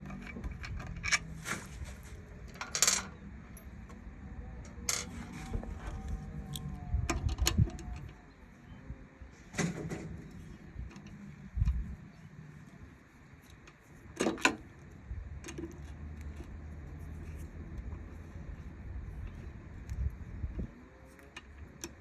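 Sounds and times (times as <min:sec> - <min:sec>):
small parts clicking and rattling: 0:00.0 - 0:01.6, 0:02.4 - 0:03.7, 0:04.7 - 0:08.2
low steady hum: 0:00.0 - 0:22.0.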